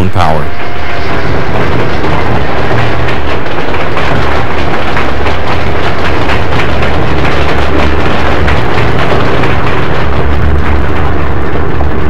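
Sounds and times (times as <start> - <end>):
train cars rumbling past: 0.0 - 12.0
wheels clattering over rail joints: 1.0 - 12.0.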